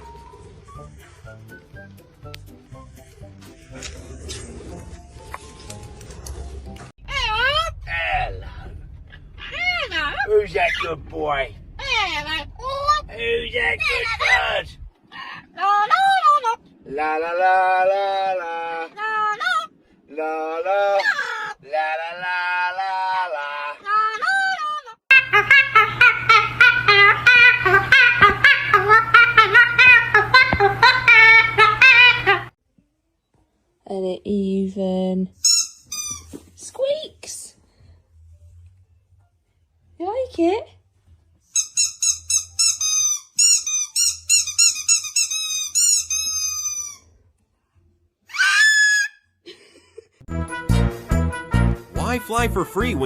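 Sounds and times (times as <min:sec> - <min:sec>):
steady low hum: 0:05.9 - 0:20.1
rubber squeaky toy squeaking: 0:35.4 - 0:36.5, 0:41.5 - 0:47.2.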